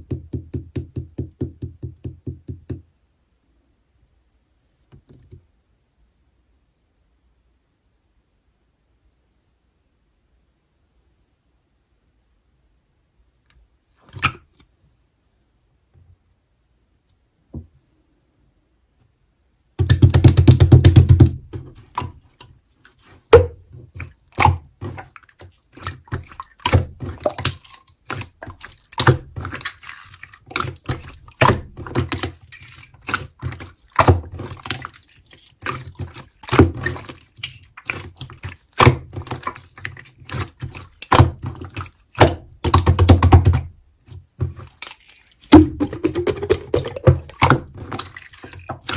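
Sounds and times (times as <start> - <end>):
slime squishing and popping: 23.2 - 43.7, 44.5 - 48.9.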